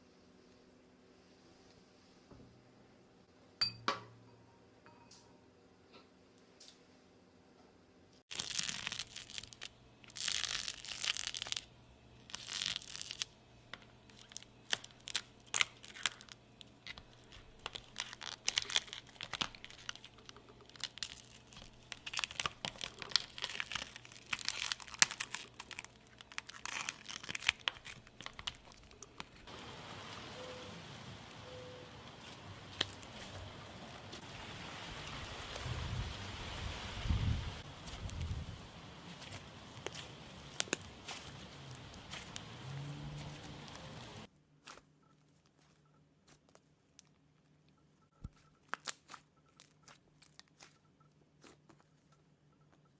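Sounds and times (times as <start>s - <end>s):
slime squishing with crackles: 8.3s - 29.5s, 32.1s - 36.2s, 37.6s - 52.9s.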